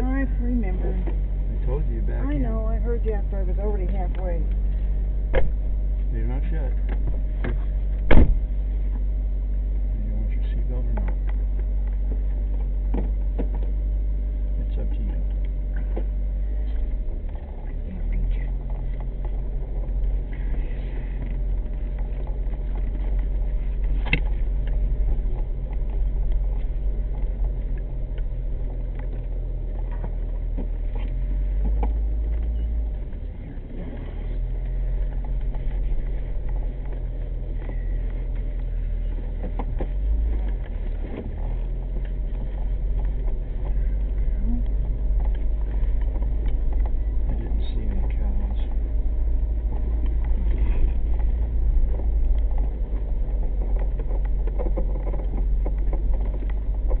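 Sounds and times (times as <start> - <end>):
car engine running: 0.0 - 57.0
road rumble: 0.0 - 57.0
sharp knocks from road: 5.3 - 5.8, 6.8 - 8.5.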